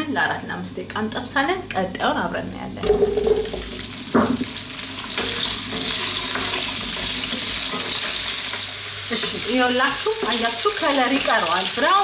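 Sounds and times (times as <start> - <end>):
potatoes frying in hot oil: 2.8 - 12.0.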